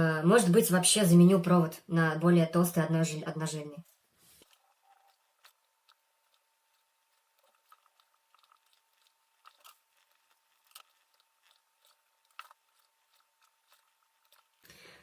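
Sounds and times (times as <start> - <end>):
faint clicks and scratches: 4.2 - 14.7.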